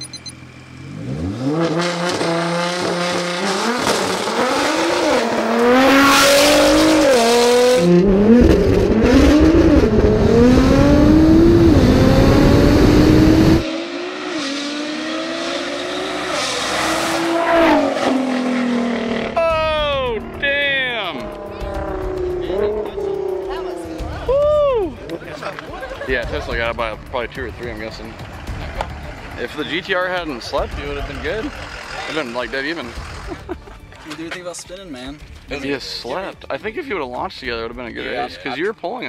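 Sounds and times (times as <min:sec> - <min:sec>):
car engine revving at full throttle: 0:00.4 - 0:24.3, 0:26.8 - 0:33.7.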